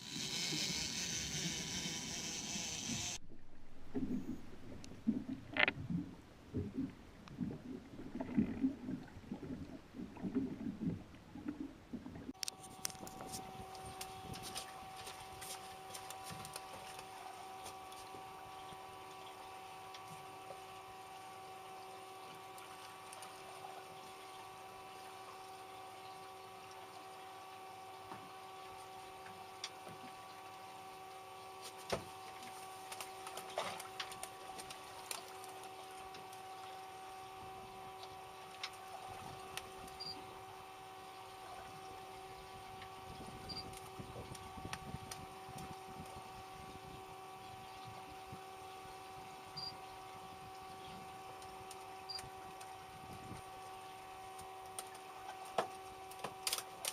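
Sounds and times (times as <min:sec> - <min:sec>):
small motor humming: 0:00.0 - 0:03.3.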